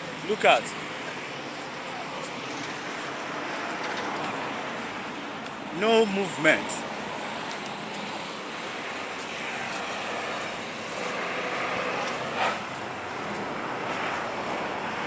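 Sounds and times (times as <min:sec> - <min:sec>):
steady hiss of water: 0:06.6 - 0:15.0.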